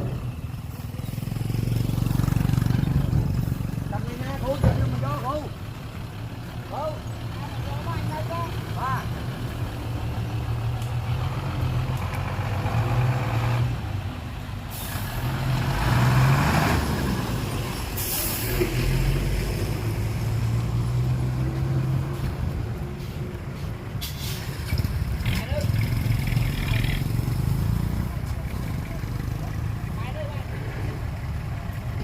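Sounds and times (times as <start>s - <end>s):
heavy diesel engines running: 0.0s - 32.0s
air hiss bursts: 24.0s - 24.6s.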